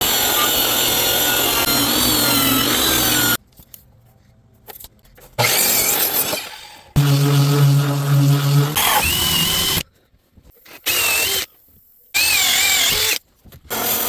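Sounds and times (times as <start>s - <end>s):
power tool cutting wood: 0.0s - 3.4s, 5.4s - 9.8s, 12.2s - 14.0s.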